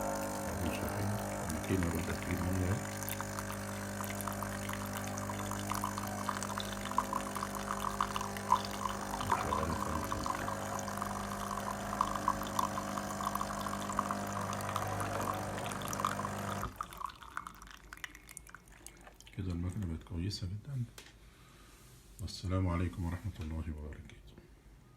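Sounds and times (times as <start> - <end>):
espresso machine pump humming: 0.0 - 17.5
water spluttering into cup: 0.4 - 19.9.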